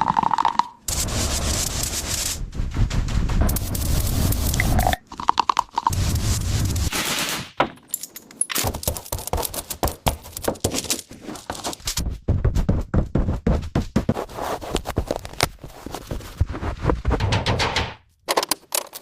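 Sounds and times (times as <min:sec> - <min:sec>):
tools clicking and scraping: 0:07.0 - 0:11.9, 0:17.3 - 0:19.0.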